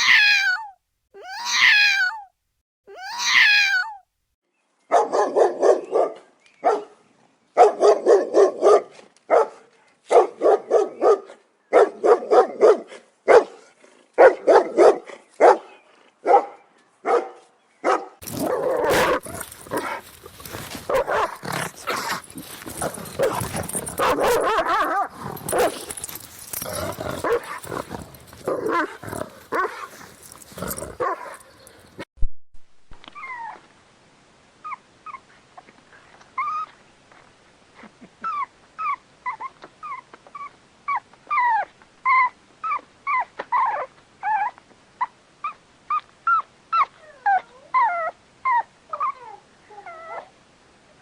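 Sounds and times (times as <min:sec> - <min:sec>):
dog barking: 0:04.9 - 0:07.0, 0:07.6 - 0:26.3, 0:27.1 - 0:30.0, 0:30.7 - 0:31.8.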